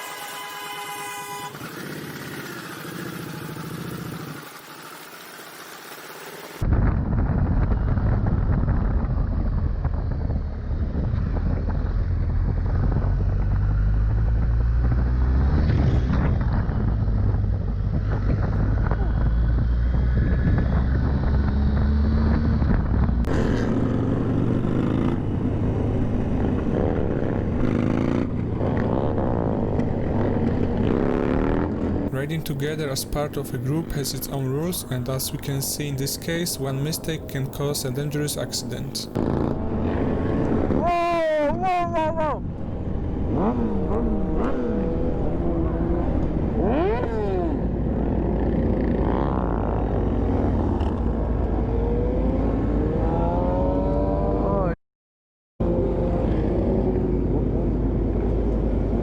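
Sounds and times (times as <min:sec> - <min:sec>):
motorcycle engine running: 0:00.0 - 0:06.7, 0:07.7 - 0:34.9
wind noise: 0:06.6 - 0:13.7.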